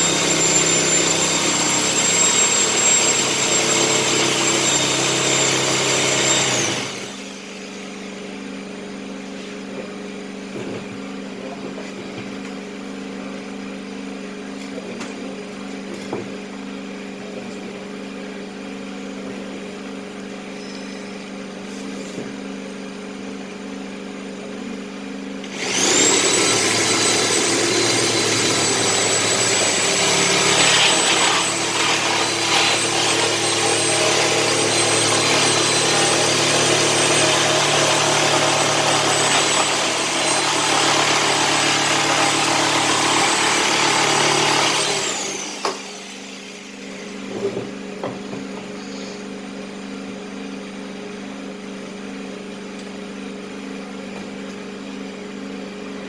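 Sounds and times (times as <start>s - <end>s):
power tool whining on metal: 0.0s - 7.9s, 25.4s - 47.6s.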